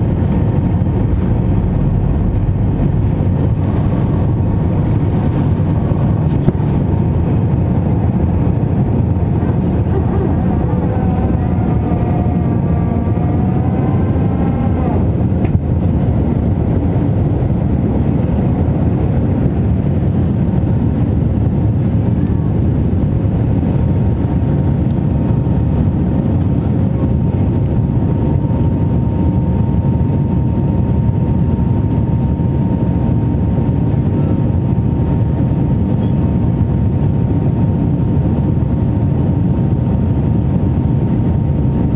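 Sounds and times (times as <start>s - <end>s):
faint steady whine: 0.0s - 12.9s
airliner engine rumble: 0.0s - 41.9s.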